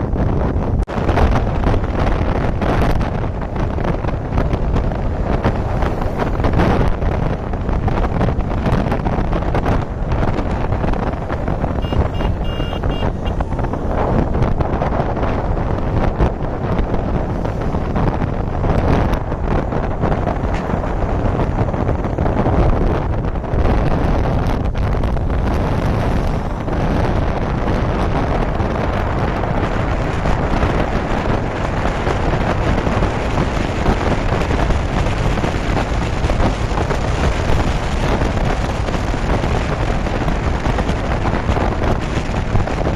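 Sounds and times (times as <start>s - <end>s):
road noise: 0.0s - 42.9s
wind buffeting microphone: 0.0s - 42.9s
brief high tone: 11.8s - 13.4s.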